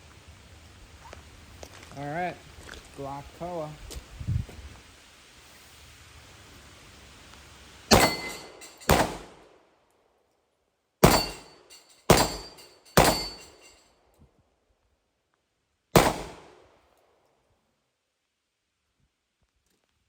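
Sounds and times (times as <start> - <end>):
pistol shots: 7.9 - 9.4, 11.0 - 13.5, 16.0 - 16.6.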